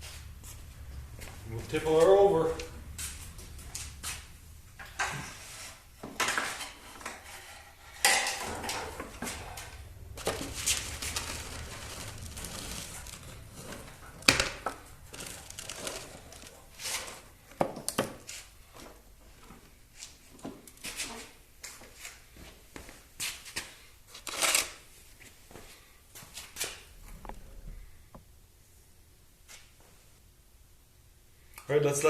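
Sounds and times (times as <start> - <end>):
metal clanks and knocks: 7.9 - 15.3.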